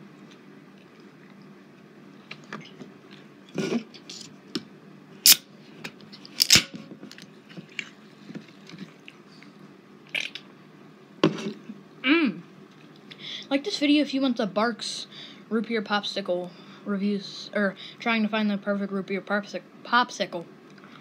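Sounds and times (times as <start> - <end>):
person chewing: 7.7 - 8.0.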